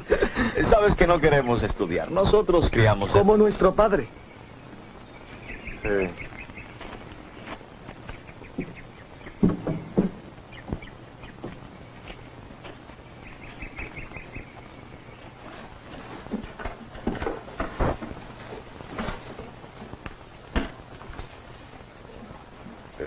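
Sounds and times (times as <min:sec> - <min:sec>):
bird chirping: 0:01.5 - 0:16.4
knocks and thumps: 0:07.9 - 0:11.7, 0:15.4 - 0:21.4.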